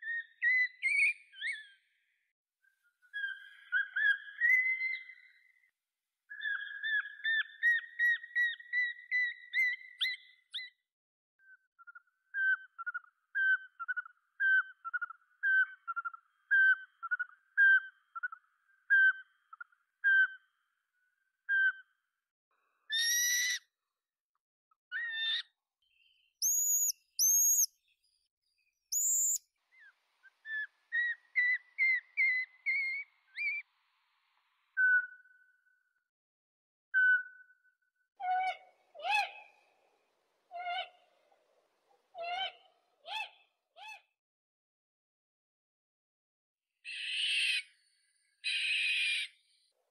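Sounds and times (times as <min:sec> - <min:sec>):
small owl calling: 0:22.9 - 0:23.6, 0:26.4 - 0:27.7, 0:28.9 - 0:29.9.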